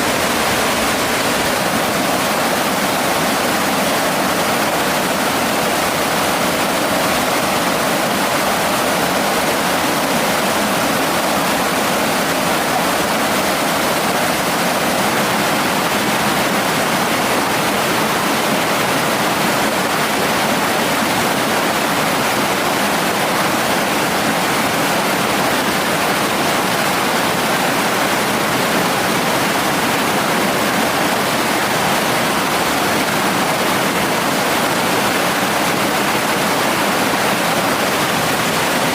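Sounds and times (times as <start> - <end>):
water rushing over rocks: 0.0 - 38.9.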